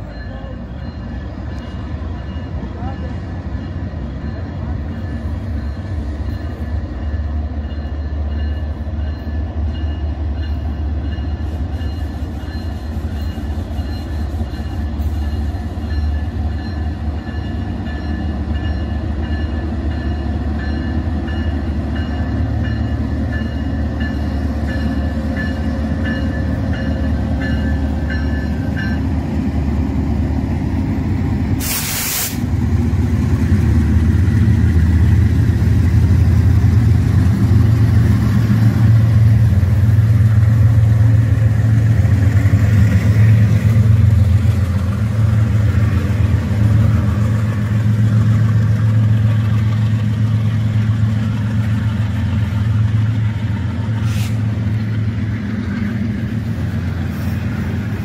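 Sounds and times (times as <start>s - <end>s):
diesel locomotives rumbling: 0.0s - 58.0s.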